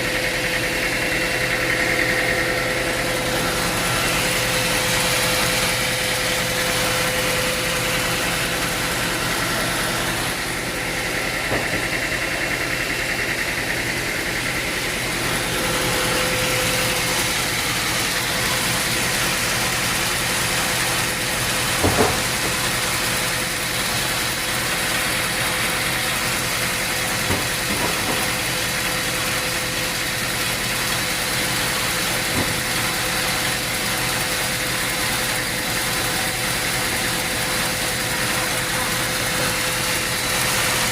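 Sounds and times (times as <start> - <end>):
sawmill machinery humming: 0.0 - 40.9.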